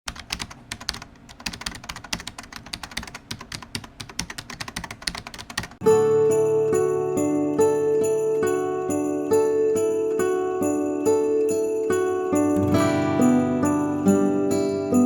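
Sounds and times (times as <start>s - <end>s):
music with ringing tones: 5.8s - 15.0s.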